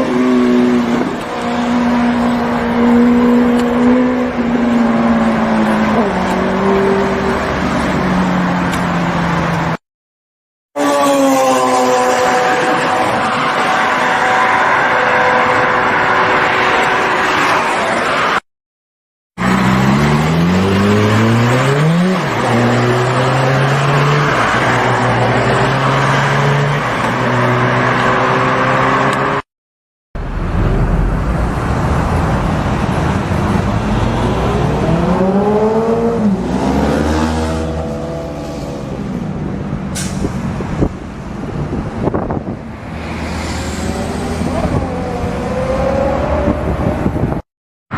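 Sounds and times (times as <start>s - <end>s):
road and wind noise: 0.0s - 9.8s, 10.8s - 18.4s, 19.4s - 29.5s, 30.2s - 47.5s
motorcycle engines revving: 42.1s - 47.4s.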